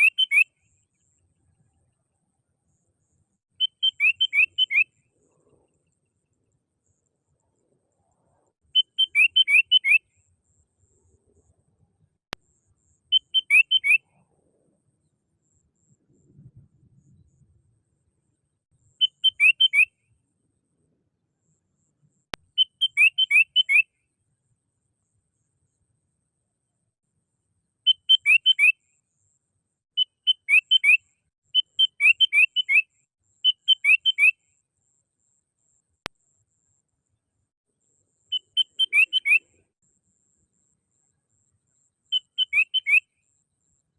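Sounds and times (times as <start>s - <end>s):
bird whistling song: 0.0s - 1.0s, 3.5s - 5.8s, 8.7s - 10.2s, 12.9s - 14.2s, 18.8s - 20.0s, 22.5s - 24.0s, 27.8s - 28.8s, 29.9s - 34.4s, 38.3s - 39.7s, 42.1s - 43.3s
bird chirping song: 0.0s - 25.9s, 27.8s - 43.9s.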